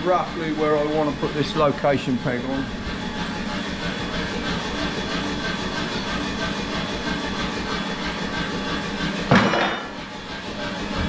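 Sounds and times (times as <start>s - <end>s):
workshop machinery humming: 0.0s - 11.0s.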